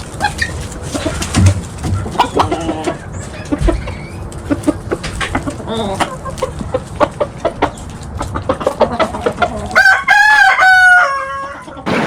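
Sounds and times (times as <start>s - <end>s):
chickens clucking: 0.0s - 12.0s
rooster crowing: 9.8s - 12.0s.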